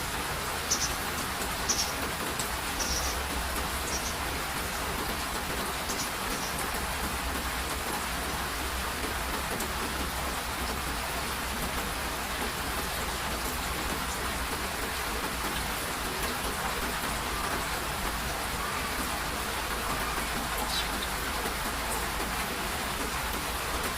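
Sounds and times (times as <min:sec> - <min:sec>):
steady rain pattering: 0:00.0 - 0:23.9.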